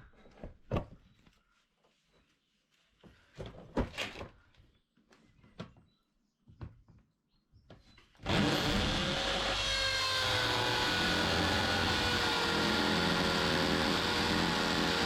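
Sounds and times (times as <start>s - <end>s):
power drill drilling into plastic: 8.2s - 15.0s.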